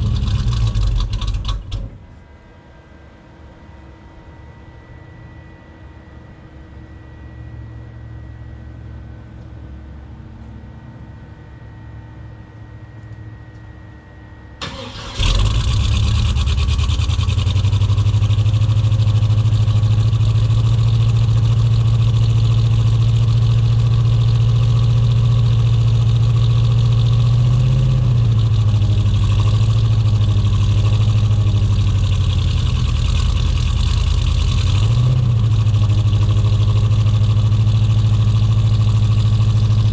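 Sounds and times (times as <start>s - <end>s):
engine idling roughly: 0.0s - 2.2s, 14.6s - 39.9s
starter motor cranking: 14.6s - 16.4s.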